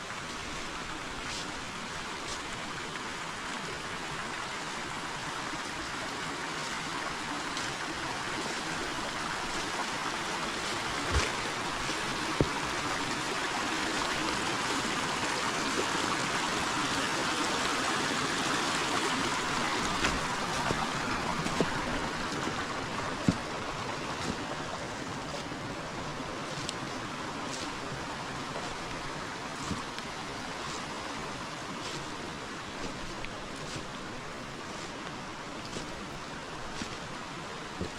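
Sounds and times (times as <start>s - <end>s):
river water rushing: 0.0s - 37.9s.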